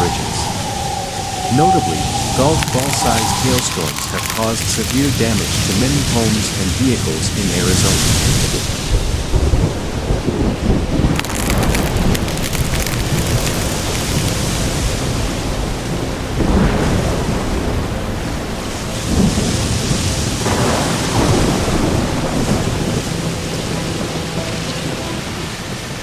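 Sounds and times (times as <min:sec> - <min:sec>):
heavy rain: 0:00.0 - 0:26.0
thunder: 0:08.2 - 0:26.0.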